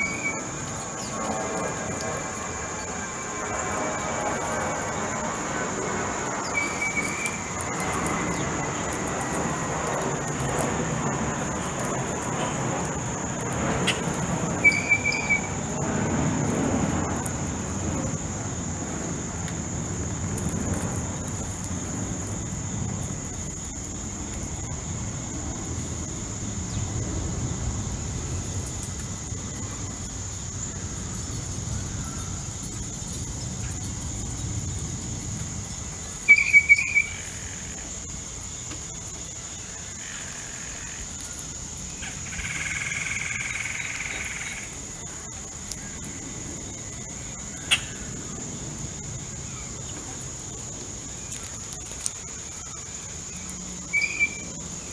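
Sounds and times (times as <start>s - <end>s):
bird calls: 0.0s - 1.3s, 6.4s - 9.0s, 13.8s - 15.8s, 36.0s - 37.9s, 47.5s - 48.4s, 51.3s - 54.9s
high insect drone: 0.0s - 54.9s.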